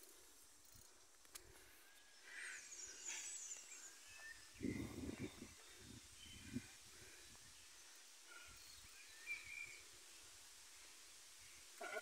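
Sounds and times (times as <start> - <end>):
faint bird chirps: 1.8 - 10.3.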